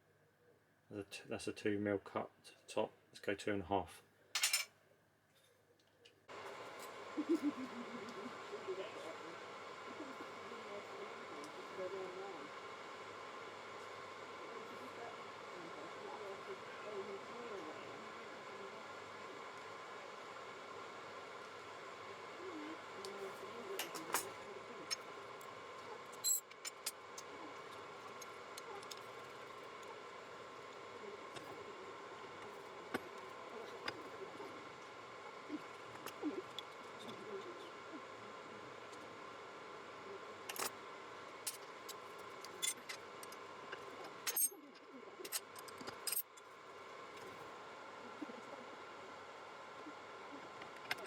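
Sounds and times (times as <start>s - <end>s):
machine hum: 6.3s - 45.9s.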